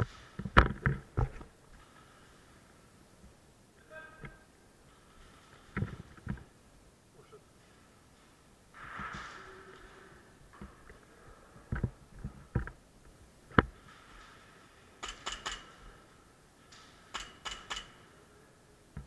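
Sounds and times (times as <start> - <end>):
sharp clicks and knocks: 11.7 - 14.4, 15.0 - 16.0, 16.6 - 18.1.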